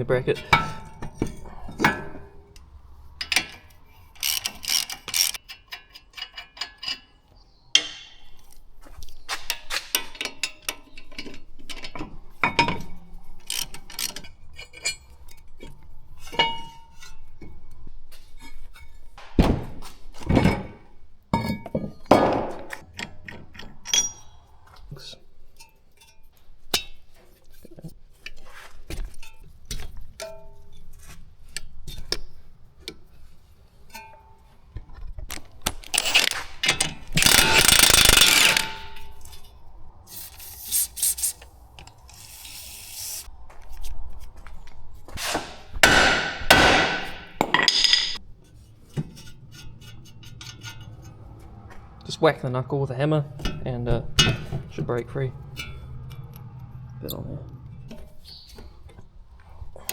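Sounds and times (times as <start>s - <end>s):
metal tools clinking on car parts: 0.0s - 8.5s, 9.2s - 17.6s, 20.3s - 24.5s, 25.3s - 27.6s, 29.0s - 39.7s, 46.8s - 52.0s, 53.3s - 59.1s
heavier metal knocks: 45.8s - 47.6s.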